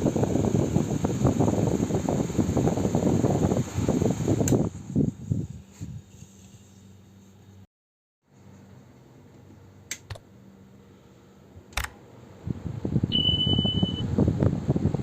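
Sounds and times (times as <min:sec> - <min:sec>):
fan airflow buffeting microphone: 0:00.0 - 0:07.6, 0:08.3 - 0:15.0
sharp clicks: 0:11.7 - 0:12.0
short high beep: 0:13.1 - 0:14.1.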